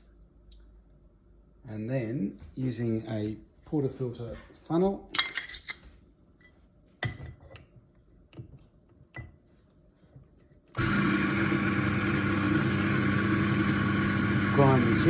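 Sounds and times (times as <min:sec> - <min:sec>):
coffee grinder motor humming: 0:10.8 - 0:15.0.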